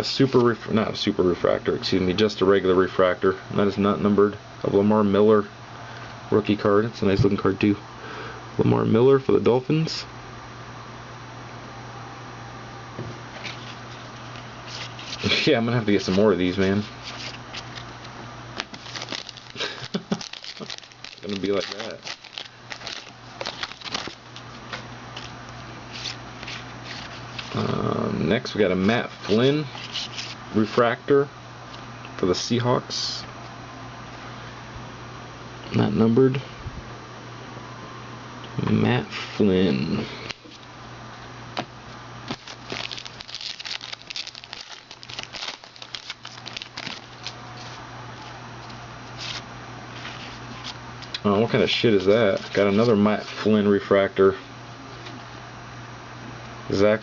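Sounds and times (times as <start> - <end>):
wrapper crinkling: 18.6 - 24.6, 42.3 - 47.8.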